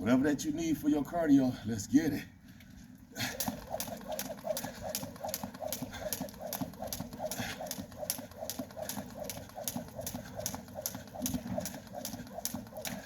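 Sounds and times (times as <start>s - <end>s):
jump rope slapping wet ground: 3.1s - 13.0s.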